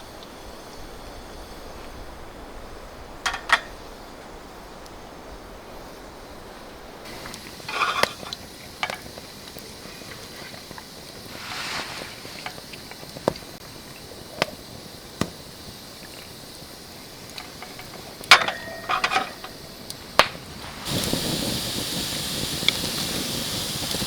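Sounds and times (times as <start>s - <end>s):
rustle: 0.0s - 14.8s
clinks with ringing tone: 17.3s - 19.9s.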